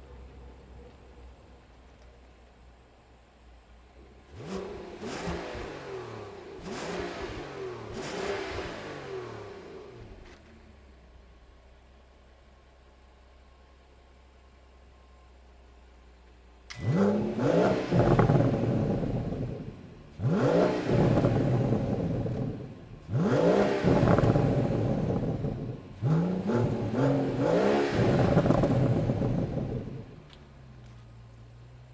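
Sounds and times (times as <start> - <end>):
car engine revving: 4.0 - 11.0, 16.7 - 31.9.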